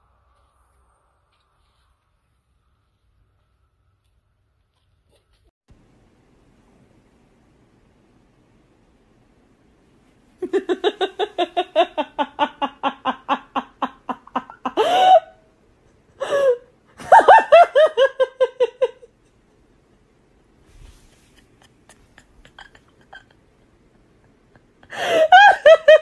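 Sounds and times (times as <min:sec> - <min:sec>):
person laughing hard: 0:10.4 - 0:15.4, 0:16.2 - 0:19.3, 0:21.2 - 0:26.0.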